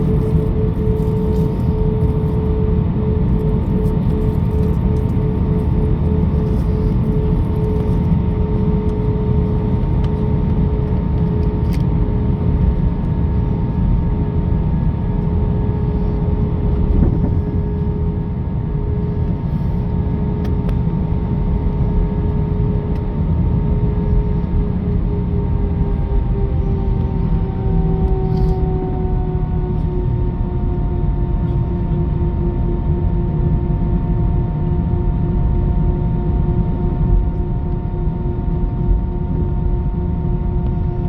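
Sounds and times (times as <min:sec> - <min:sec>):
jet engines running: 0:00.0 - 0:33.4.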